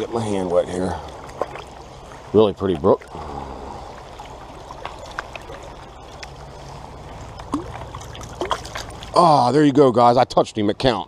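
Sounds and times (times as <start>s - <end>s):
small stream running: 0.0s - 11.0s
hand splashing in water: 7.4s - 9.2s.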